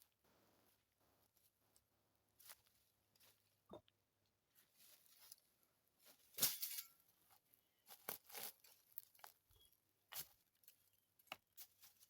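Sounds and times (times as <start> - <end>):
crunching and rustling: 7.8 - 9.5.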